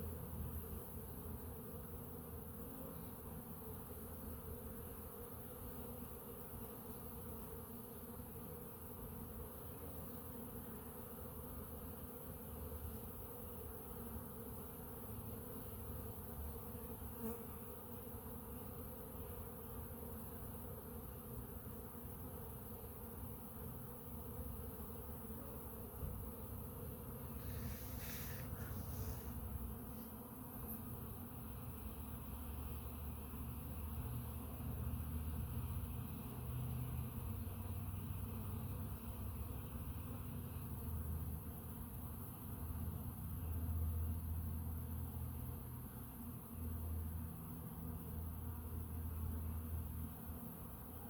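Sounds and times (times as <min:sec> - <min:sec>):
honey bees buzzing: 0:00.0 - 0:40.8.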